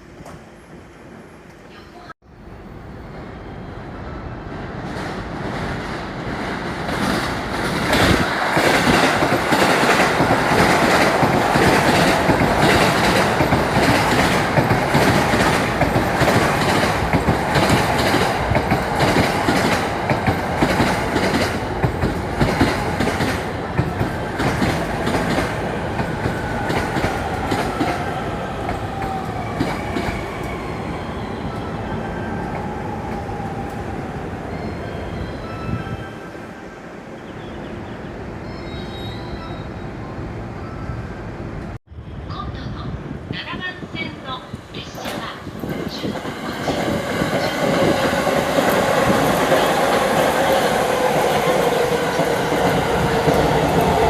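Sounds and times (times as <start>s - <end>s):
electric train passing: 2.3s - 42.3s, 43.8s - 54.0s
train braking whine: 37.2s - 41.1s.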